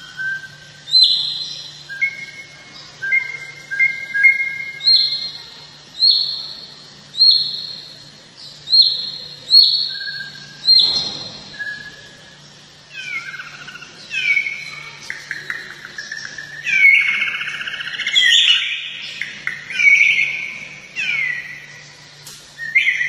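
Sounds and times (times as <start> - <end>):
high bird whistle: 22.6 - 23.0.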